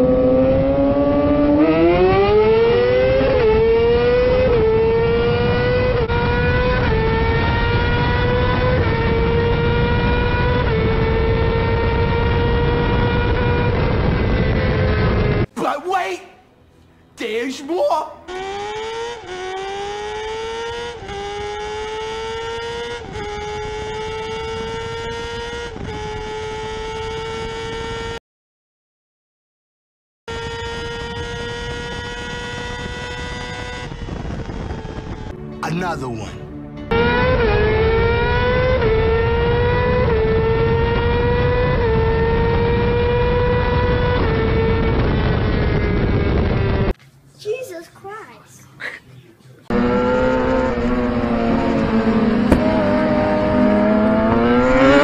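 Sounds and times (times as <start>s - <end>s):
motorcycle engine at full throttle: 0.0s - 15.5s, 18.3s - 28.2s, 30.3s - 35.4s, 36.9s - 47.0s, 49.7s - 55.0s
wind rush: 32.5s - 35.4s.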